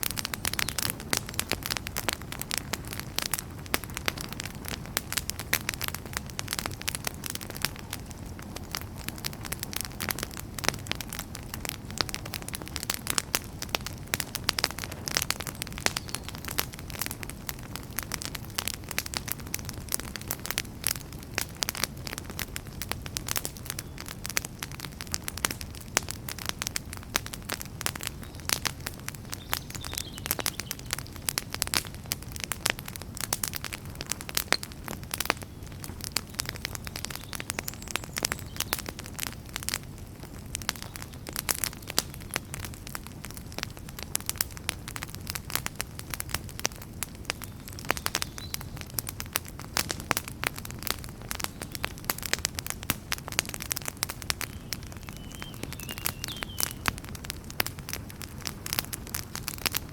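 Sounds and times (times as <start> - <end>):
logs crackling and popping: 0.0 - 59.9
low rumble of flames: 0.0 - 59.9.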